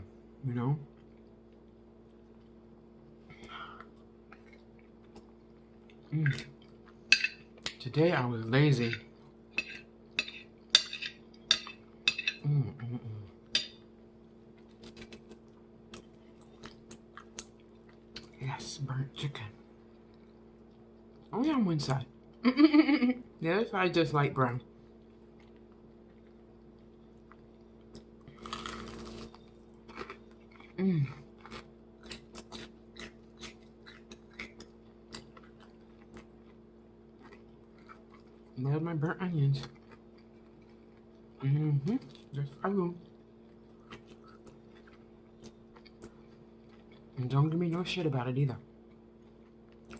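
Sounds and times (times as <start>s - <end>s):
steady low hum: 0.0s - 49.9s
cutlery clinking on a plate: 9.6s - 12.4s
person humming: 12.4s - 13.4s, 30.8s - 31.2s
wet chewing and crunching: 14.5s - 18.4s, 24.8s - 38.6s, 39.6s - 42.4s, 43.0s - 47.2s, 48.8s - 49.9s.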